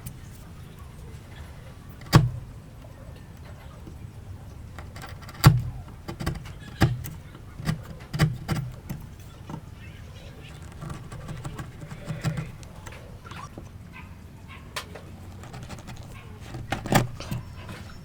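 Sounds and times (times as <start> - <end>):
hand tools knocking on wood: 4.8 - 9.7, 15.3 - 18.0.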